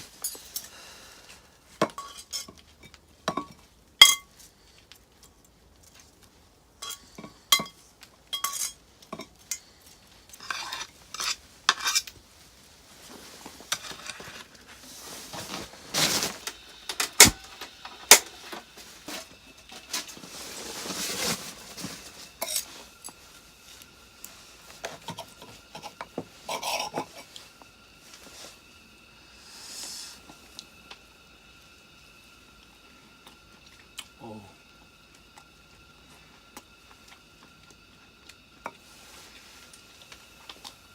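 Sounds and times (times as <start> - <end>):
utensils clinking on cookware: 1.8 - 4.3, 6.8 - 9.6, 10.4 - 12.1, 25.0 - 27.4
utensils scraping cookware: 10.4 - 12.1, 25.0 - 27.3.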